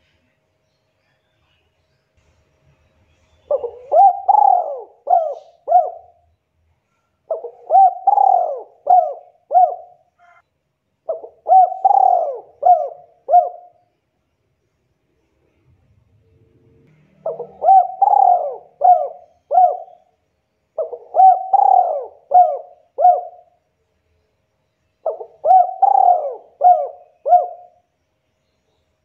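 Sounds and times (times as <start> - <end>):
dove cooing: 3.5 - 6.2, 7.3 - 10.4, 11.1 - 13.8, 17.2 - 20.1, 20.8 - 23.6, 25.0 - 27.8.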